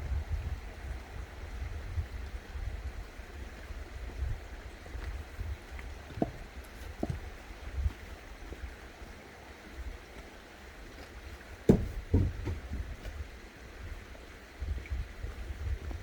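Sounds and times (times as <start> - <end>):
dull knocks: 11.7 - 13.2.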